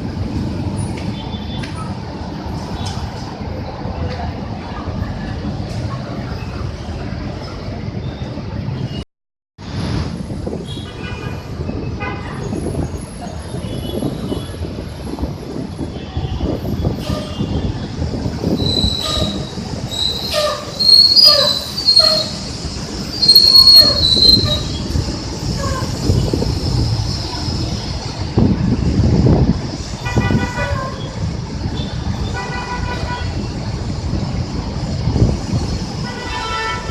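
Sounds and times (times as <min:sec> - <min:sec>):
bus engine rumbling: 0:00.0 - 0:09.0, 0:11.3 - 0:36.9
brakes squealing: 0:18.1 - 0:28.0.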